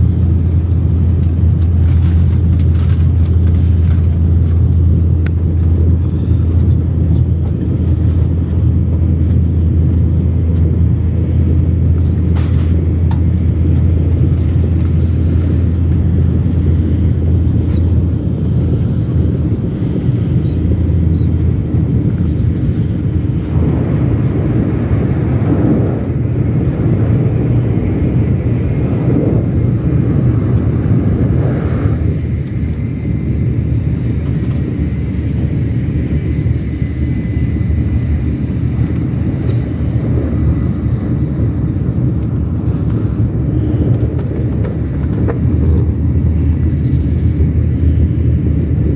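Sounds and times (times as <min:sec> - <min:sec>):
moving vehicle rumble: 0:00.0 - 0:48.9
rushing noise: 0:12.0 - 0:48.9.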